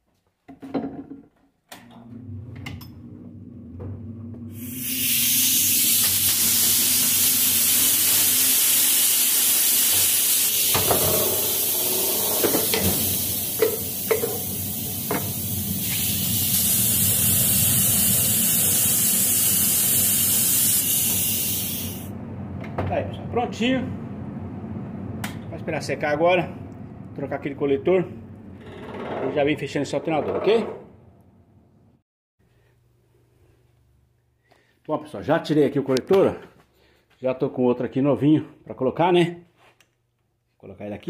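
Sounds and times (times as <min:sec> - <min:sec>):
spray hissing: 0:04.6 - 0:22.1
low hum: 0:21.6 - 0:28.7.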